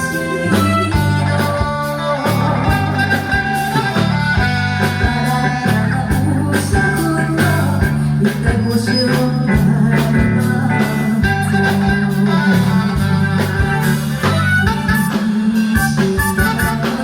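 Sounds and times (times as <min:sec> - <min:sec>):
drum beat: 0:00.0 - 0:08.7
bass line: 0:00.0 - 0:17.0
lead guitar: 0:00.0 - 0:17.0.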